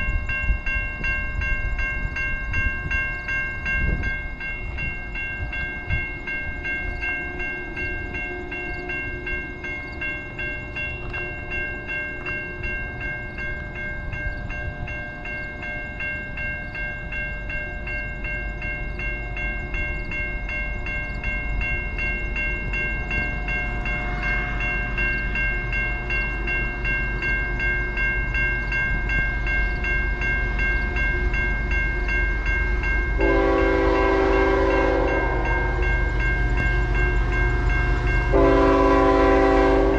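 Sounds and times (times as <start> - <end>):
level-crossing bell ringing: 0.0 - 39.9
train rumble: 0.0 - 39.9
locomotive horn chord: 33.2 - 39.9.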